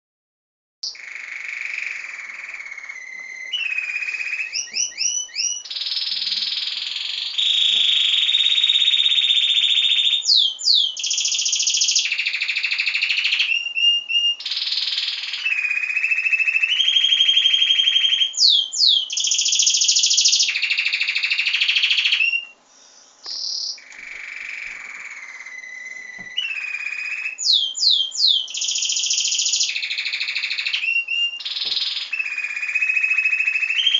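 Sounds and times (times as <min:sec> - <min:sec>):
songbird singing trills: 0:00.8 - 0:33.9.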